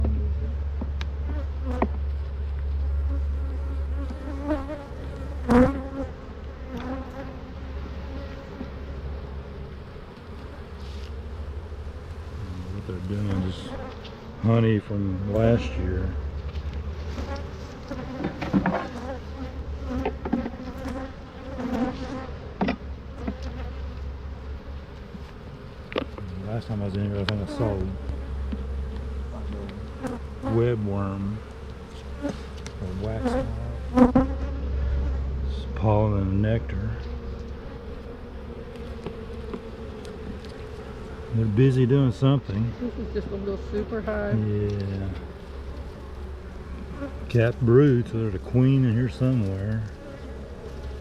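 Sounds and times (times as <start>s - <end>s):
bees buzzing: 0.0s - 51.0s
bees buzzing past microphone: 1.1s - 2.0s, 2.9s - 51.0s.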